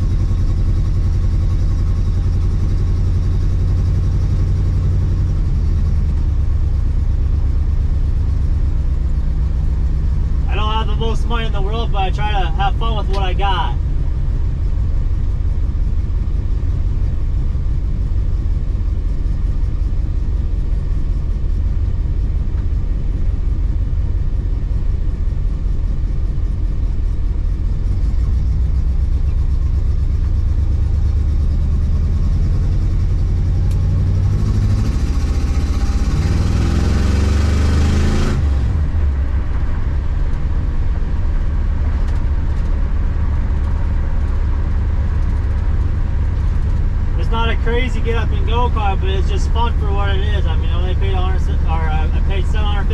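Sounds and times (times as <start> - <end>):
car engine running: 0.0 - 52.9
road noise: 0.0 - 52.9.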